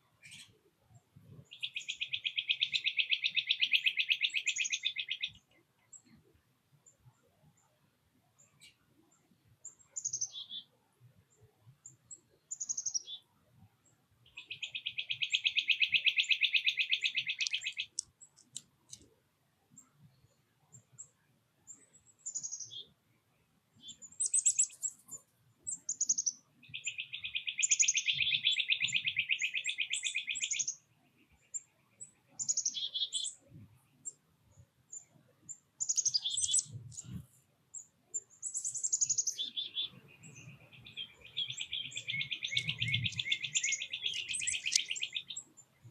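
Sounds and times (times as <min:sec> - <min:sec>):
rapid bird trills: 0:14.4 - 0:18.0, 0:23.8 - 0:30.8, 0:38.2 - 0:45.9.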